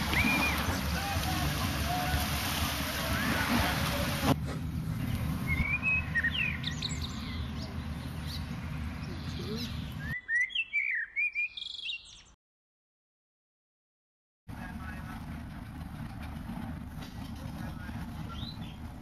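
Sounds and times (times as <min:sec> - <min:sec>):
small birds chirping: 0:04.9 - 0:12.4, 0:17.6 - 0:19.0.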